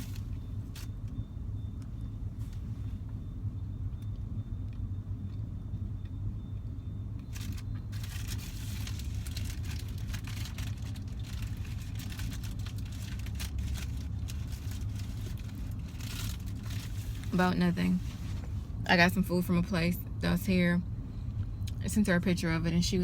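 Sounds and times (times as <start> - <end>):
close crinkling and rustling: 0.0 - 1.0, 7.2 - 18.7
car engine running: 0.0 - 23.0.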